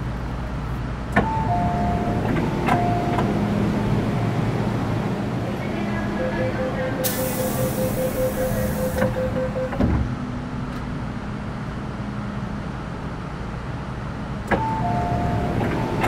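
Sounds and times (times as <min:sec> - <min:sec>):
stationary train hum: 0:00.0 - 0:16.0
train doors closing thud: 0:01.2 - 0:03.5, 0:07.0 - 0:10.2
pulsing warning beep: 0:05.8 - 0:09.8.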